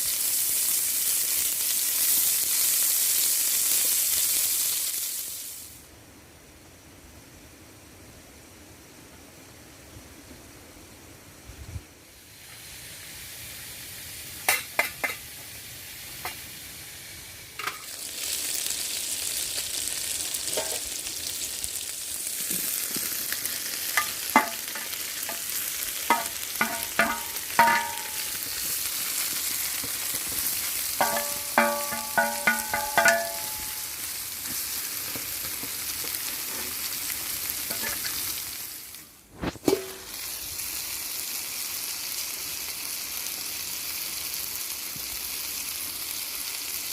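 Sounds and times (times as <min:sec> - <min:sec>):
food sizzling in a pan: 0:00.0 - 0:05.9, 0:12.0 - 0:46.9
utensil clinking against pan: 0:24.0 - 0:25.4, 0:26.1 - 0:28.4, 0:31.0 - 0:33.9.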